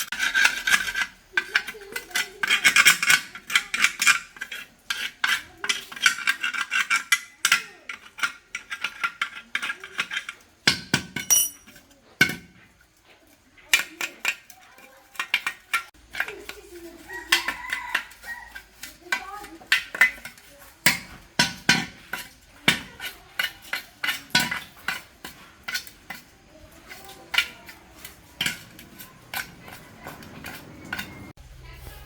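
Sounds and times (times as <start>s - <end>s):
hand tool scraping metal: 0.0s - 31.4s
sharp metallic clinks: 11.2s - 11.8s.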